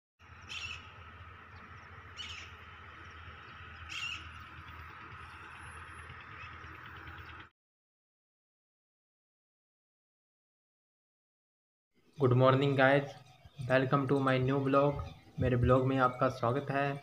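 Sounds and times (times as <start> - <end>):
bird calling: 0.2 - 7.5.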